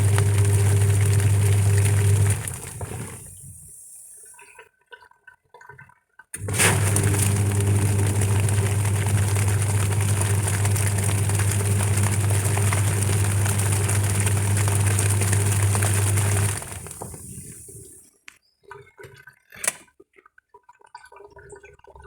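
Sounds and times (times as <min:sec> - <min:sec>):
washing machine running: 0:00.0 - 0:04.0, 0:06.4 - 0:18.0.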